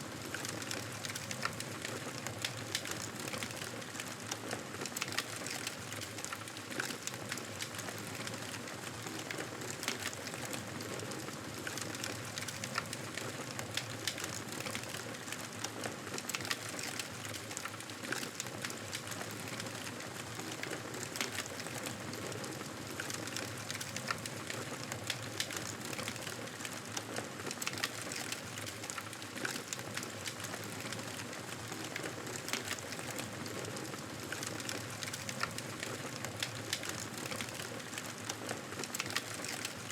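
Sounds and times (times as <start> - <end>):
campfire crackling and popping: 22.9 - 26.8.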